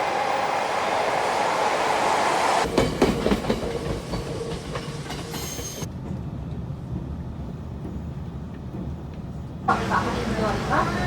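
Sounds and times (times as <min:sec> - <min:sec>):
train rumbling: 0:00.0 - 0:11.0
train clacking on rails: 0:02.3 - 0:11.0.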